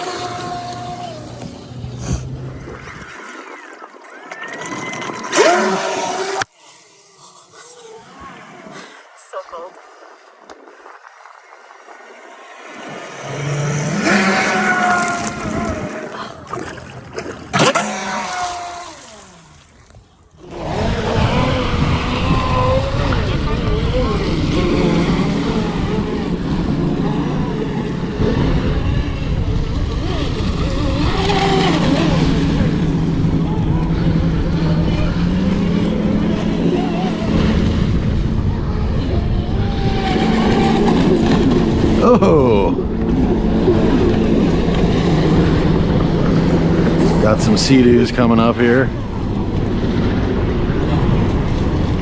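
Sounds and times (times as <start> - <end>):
toy boat motor whining: 0.0 - 8.2, 12.2 - 16.3, 17.6 - 52.0
water rushing: 0.0 - 52.0
wind on microphone: 13.3 - 16.6, 19.9 - 52.0.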